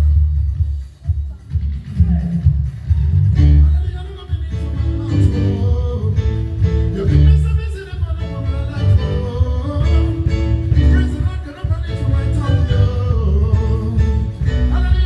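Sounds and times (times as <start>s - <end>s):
heavy bass line: 0.0s - 0.7s, 1.6s - 15.0s
live band playing: 1.9s - 15.0s
person singing: 3.4s - 15.0s.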